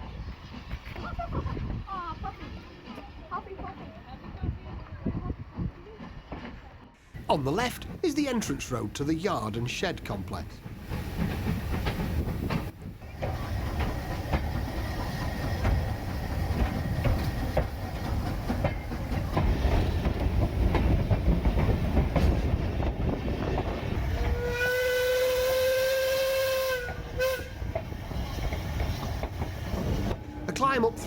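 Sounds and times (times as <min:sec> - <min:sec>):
steam train wheels clattering: 0:00.0 - 0:31.0
steam whistle blast: 0:24.4 - 0:27.6.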